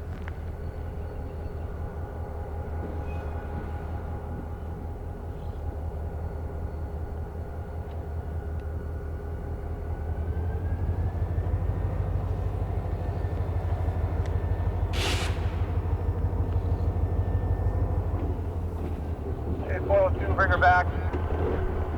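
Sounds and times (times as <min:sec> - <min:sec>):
diesel locomotive engine rumbling: 0:00.0 - 0:21.9
burst of hiss: 0:15.0 - 0:15.5.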